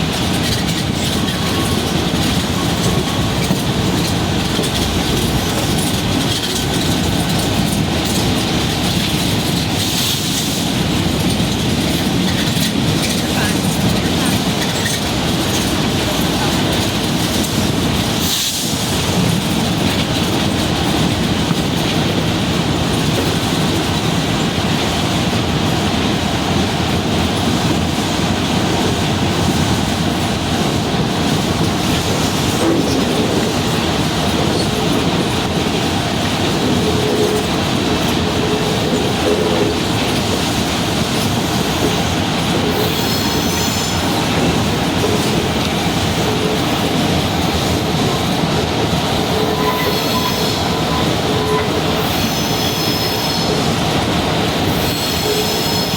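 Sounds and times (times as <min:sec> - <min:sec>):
train wheels on rail: 0:00.0 - 0:55.9
high wheel squeal: 0:42.8 - 0:44.2, 0:49.2 - 0:53.7, 0:54.7 - 0:55.9.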